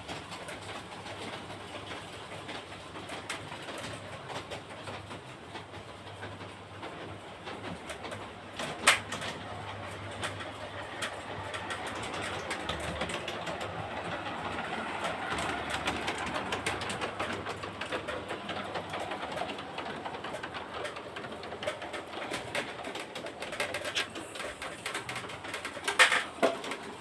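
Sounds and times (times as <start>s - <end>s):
model train whirring: 0.0s - 27.0s.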